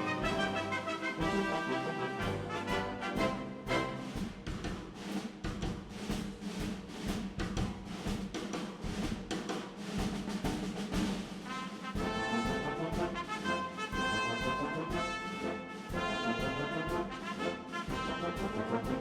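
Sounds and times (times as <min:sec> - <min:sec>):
orchestral brass: 0:00.0 - 0:05.1, 0:11.2 - 0:19.0
drum and snare hits: 0:00.0 - 0:19.0
timpani: 0:00.0 - 0:19.0.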